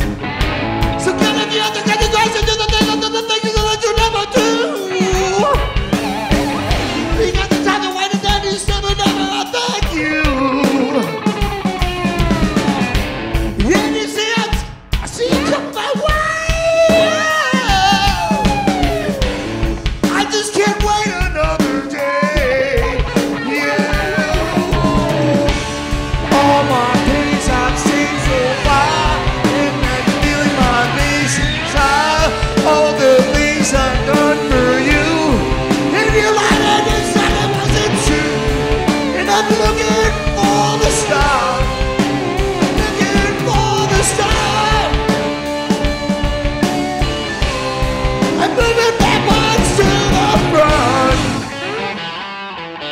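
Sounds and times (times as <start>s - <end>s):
guitar sliding melodic lines: 0.0s - 14.1s, 16.8s - 52.9s
live rock band playing: 0.0s - 52.9s.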